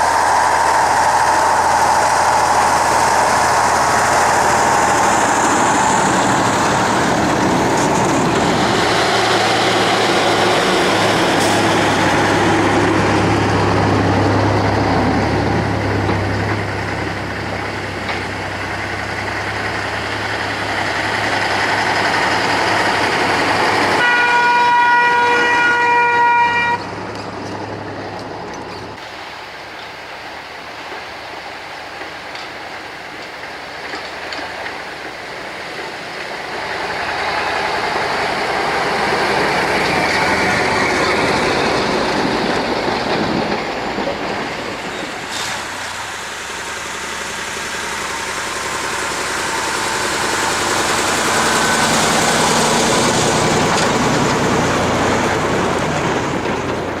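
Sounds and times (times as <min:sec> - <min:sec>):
passing traffic rumbling: 0:00.0 - 0:57.0
vehicle horn: 0:24.0 - 0:26.9.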